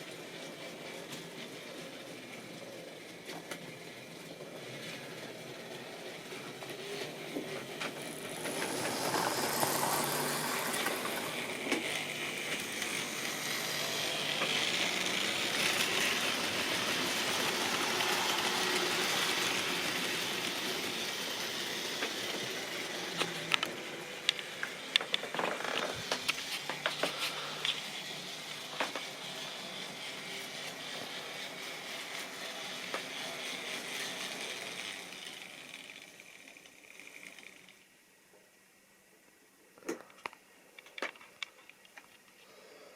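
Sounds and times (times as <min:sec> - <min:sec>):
model train rumbling on track: 0:00.0 - 0:37.8.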